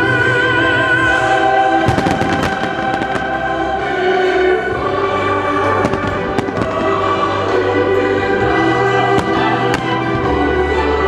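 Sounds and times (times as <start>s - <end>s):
loud music: 0.0s - 11.0s
fireworks bangs: 1.8s - 3.8s, 5.7s - 7.6s, 9.0s - 10.2s.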